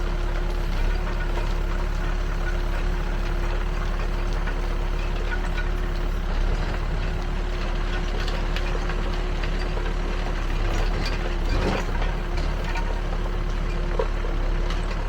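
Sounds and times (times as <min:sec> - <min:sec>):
diesel engine running with whine: 0:00.0 - 0:15.0
machine clanks and rattles: 0:07.5 - 0:15.0.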